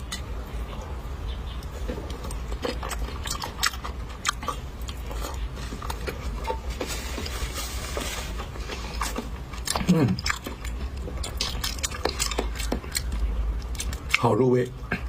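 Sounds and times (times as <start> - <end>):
chewing mouth sounds: 1.6 - 7.5, 8.4 - 14.3.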